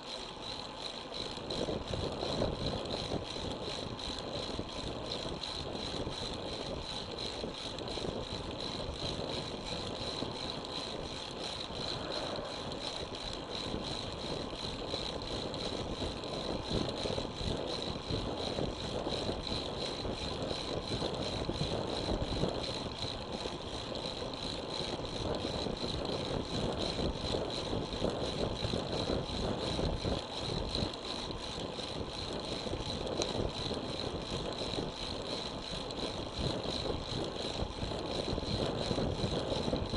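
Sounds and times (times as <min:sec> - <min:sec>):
bike tyres on road: 0:00.0 - 0:39.9
wind rushing on microphone: 0:01.5 - 0:39.9
thin high whine: 0:11.1 - 0:14.2.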